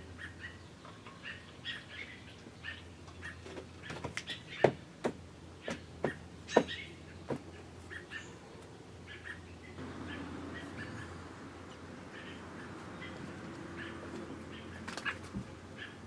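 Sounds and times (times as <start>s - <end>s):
bird chirping: 5.6s - 16.0s.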